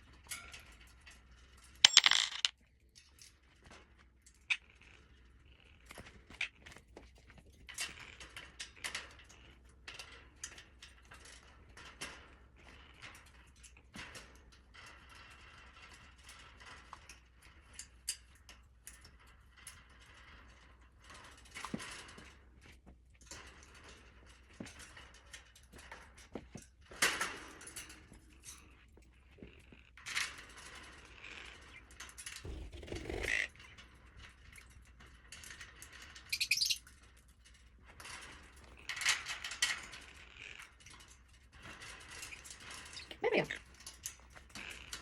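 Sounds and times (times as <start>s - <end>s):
metal parts clicking and scraping: 1.9s - 2.5s, 32.5s - 33.4s.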